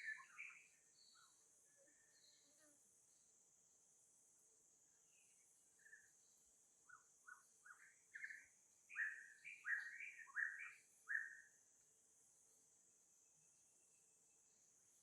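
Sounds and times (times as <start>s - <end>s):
bird chirping: 0.0s - 3.2s, 5.0s - 11.6s
high insect hiss: 0.0s - 15.0s.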